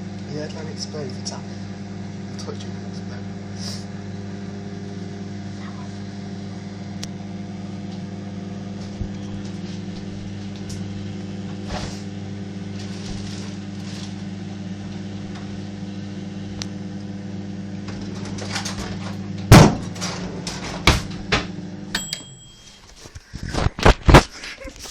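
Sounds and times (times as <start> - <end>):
microwave oven humming: 0.0 - 24.9
egg bursting with a bang: 19.5 - 20.0.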